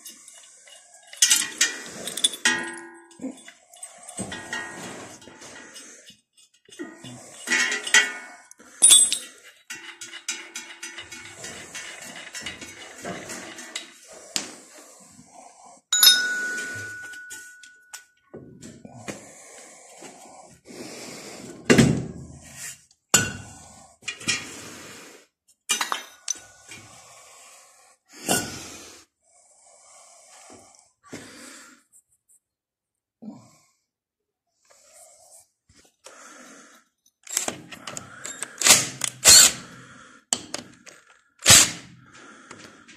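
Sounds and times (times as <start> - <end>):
metal tools clinking and knocking: 0.0 - 8.2, 8.8 - 14.0, 16.0 - 18.1, 25.7 - 26.5
sharp metal strikes ringing: 16.0 - 17.6.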